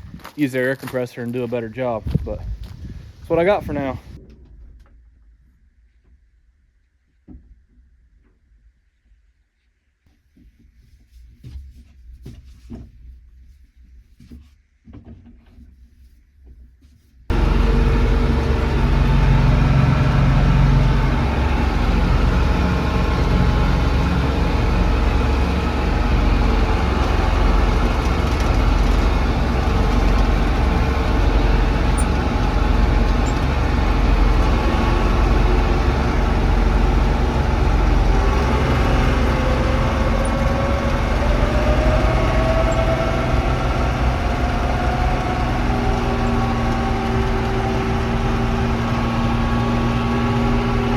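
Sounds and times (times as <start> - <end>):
diesel engine rumbling: 17.3 - 50.9
whine rising in pitch: 17.3 - 50.9.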